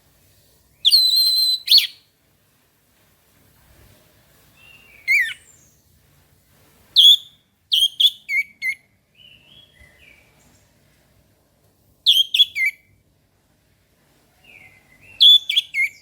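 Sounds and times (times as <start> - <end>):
bird whistled notes: 0.8 - 2.0, 4.6 - 5.6, 7.0 - 10.2, 12.1 - 12.8, 14.5 - 16.0.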